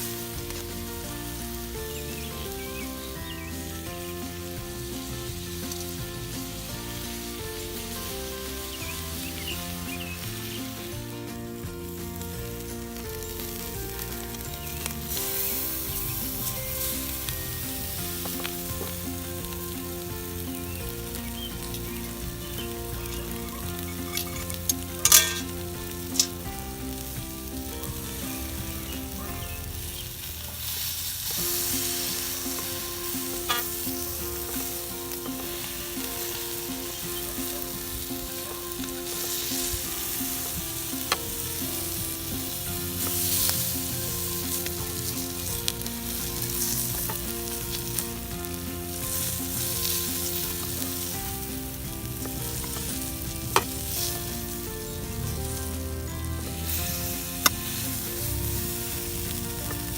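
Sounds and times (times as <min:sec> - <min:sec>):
steak sizzling in a frying pan: 0:00.0 - 0:59.9.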